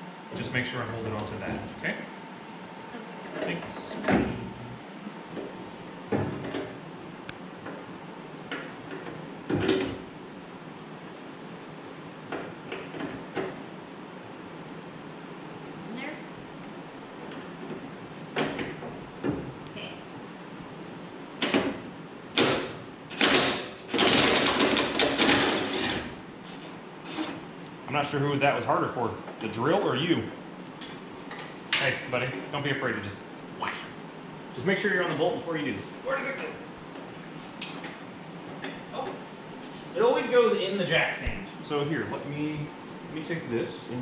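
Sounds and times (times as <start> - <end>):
power drill running: 23.9 - 26.2.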